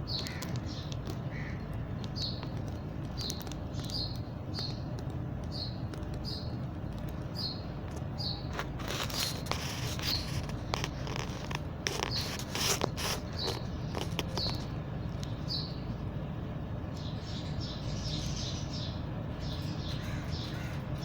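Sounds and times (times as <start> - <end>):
parrots chirping: 0.0 - 8.5, 17.0 - 21.0.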